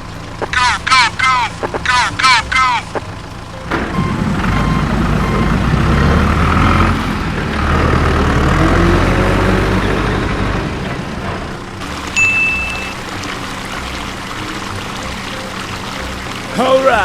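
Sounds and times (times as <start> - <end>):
heavy truck engine rumbling: 0.0 - 17.0
steady high beep: 12.2 - 13.0.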